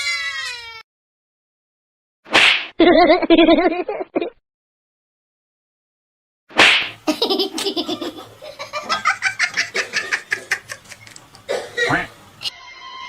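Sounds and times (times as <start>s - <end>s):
person laughing hard: 2.8s - 4.4s, 7.1s - 11.1s.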